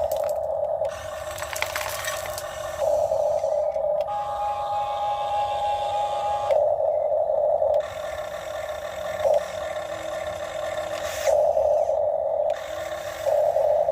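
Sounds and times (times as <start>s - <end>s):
small electric motors running: 7.8s - 13.9s.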